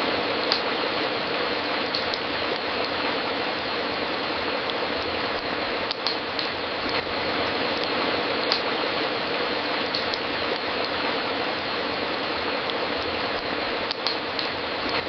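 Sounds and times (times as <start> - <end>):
burning wood hiss: 0.0 - 15.0
sharp fire pops: 0.4 - 0.8, 1.8 - 3.2, 4.7 - 8.8, 9.8 - 11.1, 12.6 - 15.0.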